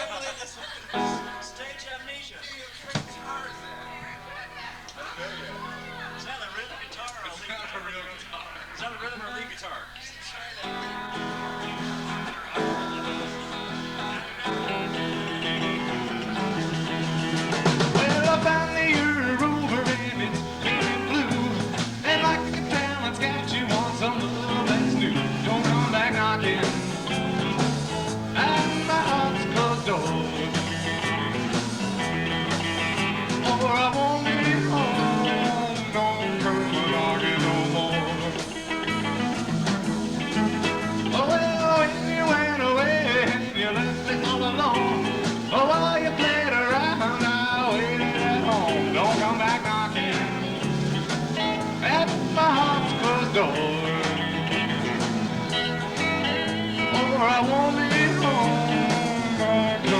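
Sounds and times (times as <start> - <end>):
drums: 0.0 - 8.3, 10.1 - 59.9
electric guitars: 0.0 - 9.0, 10.1 - 59.9
live rock band playing: 10.6 - 59.9
bass line: 12.9 - 59.9.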